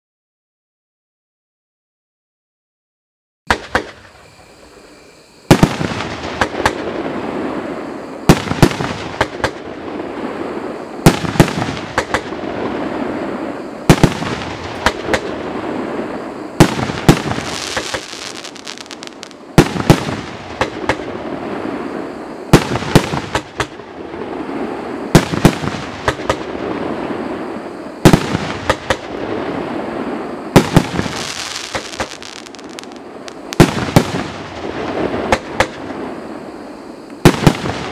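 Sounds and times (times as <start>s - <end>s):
firework sharp reports: 3.5s - 37.9s
firework crackling: 5.5s - 37.9s.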